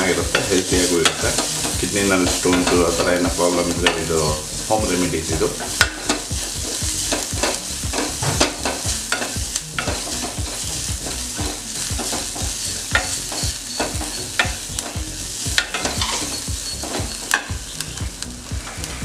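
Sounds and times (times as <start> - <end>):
spatula scraping a metal pan: 0.0 - 4.7, 5.3 - 17.8
food sizzling in a pan: 0.0 - 19.0.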